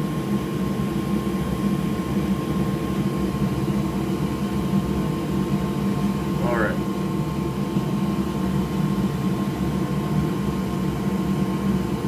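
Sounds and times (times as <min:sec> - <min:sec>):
electric fan whirring hum: 0:00.0 - 0:12.0
faint high whine: 0:06.4 - 0:06.9.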